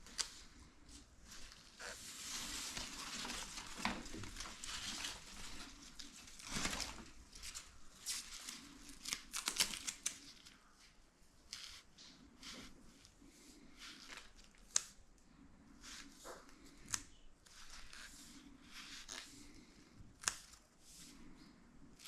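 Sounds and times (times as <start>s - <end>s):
rustling and crinkling: 0.0s - 15.0s.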